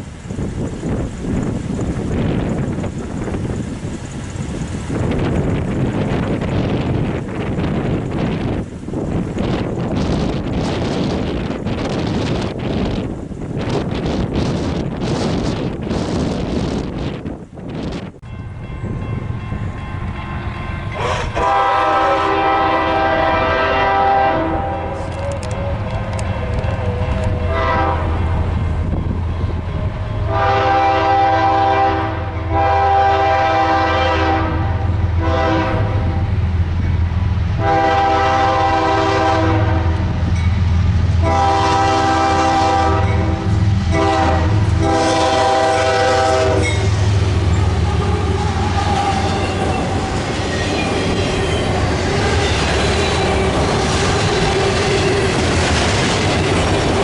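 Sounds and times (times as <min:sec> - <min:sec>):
train rumble: 0:00.0 - 0:57.0
locomotive air horn blasts: 0:20.9 - 0:28.4, 0:30.3 - 0:36.3, 0:37.6 - 0:40.1, 0:41.2 - 0:47.0.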